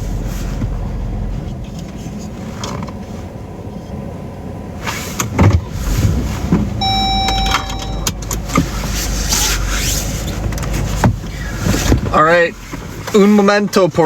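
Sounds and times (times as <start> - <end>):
low steady rumble: 0.0 - 14.0
electronic beep: 6.8 - 8.1.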